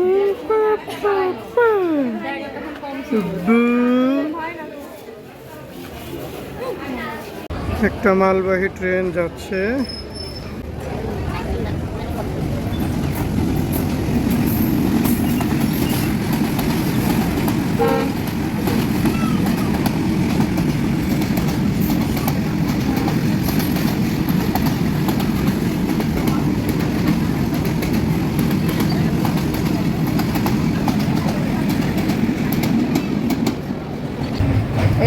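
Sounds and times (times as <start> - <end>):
freight train rumbling on rails: 7.5 - 35.0.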